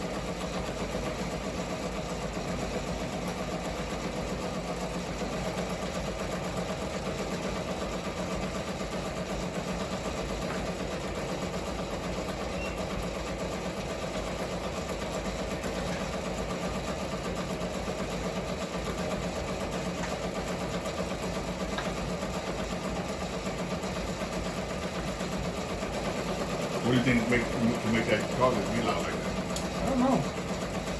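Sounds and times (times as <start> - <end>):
embroidery machine clatter: 0.0 - 30.9.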